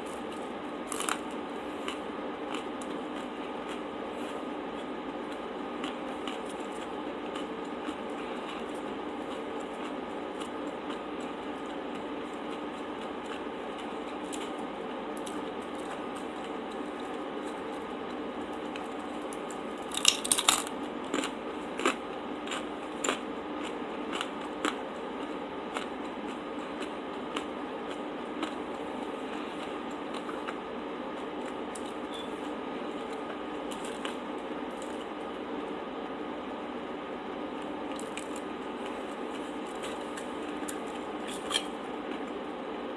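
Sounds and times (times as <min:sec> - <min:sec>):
crisp crunches and clicks: 0:00.0 - 0:03.8, 0:18.6 - 0:24.8, 0:33.0 - 0:35.2, 0:37.6 - 0:42.4
chewing noises: 0:00.1 - 0:32.0.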